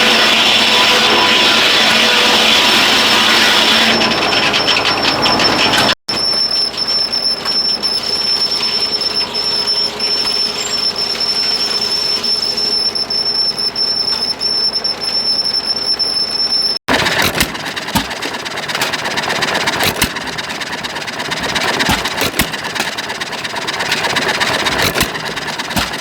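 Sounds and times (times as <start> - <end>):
mechanical running sound: 16.9 - 26.0.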